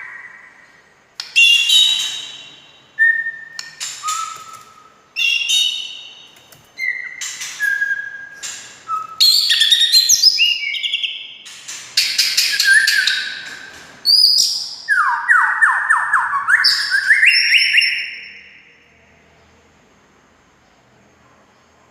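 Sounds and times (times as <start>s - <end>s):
songbird whistling and trilling: 1.2s - 11.4s, 12.0s - 18.6s.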